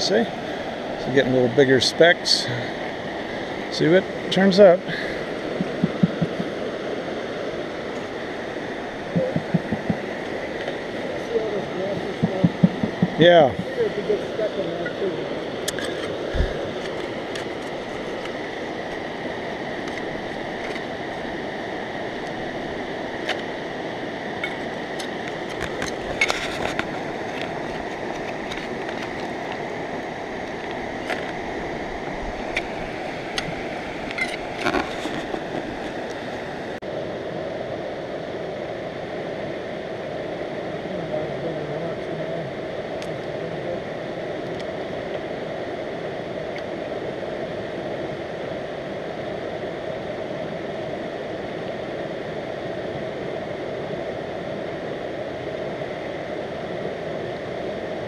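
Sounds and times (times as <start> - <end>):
river water rushing: 0.0 - 58.0
sharp clicks and knocks: 5.6 - 6.5, 9.1 - 10.0, 12.2 - 13.2.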